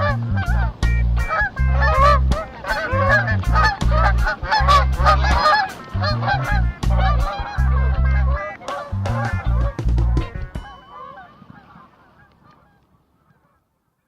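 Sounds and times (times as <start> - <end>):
music with stepped bass line: 0.0 - 10.7
wavering honk-like calls: 0.0 - 13.6.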